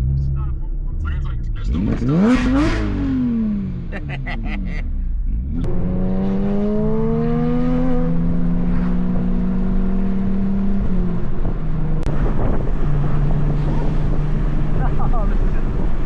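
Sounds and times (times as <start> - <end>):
car engine revving: 0.0 - 16.0
wind on microphone: 11.1 - 14.8.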